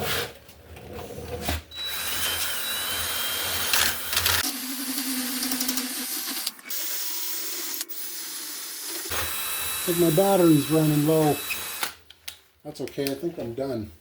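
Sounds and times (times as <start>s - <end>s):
cordless drill grinding steel: 1.7s - 12.0s.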